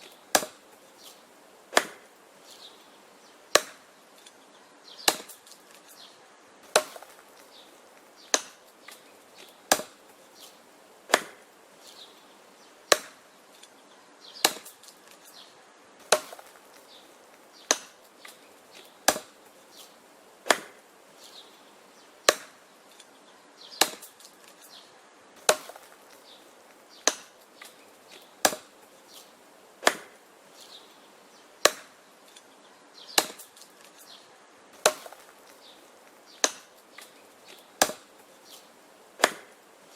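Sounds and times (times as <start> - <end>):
wood being chopped: 0.0 - 0.7, 1.7 - 2.1, 3.5 - 3.9, 5.0 - 5.9, 6.6 - 11.5, 12.9 - 13.2, 14.4 - 15.4, 16.0 - 20.8, 22.2 - 23.1, 23.8 - 24.7, 25.4 - 29.2, 29.8 - 30.2, 31.6 - 32.5, 33.1 - 34.1, 34.8 - 39.6.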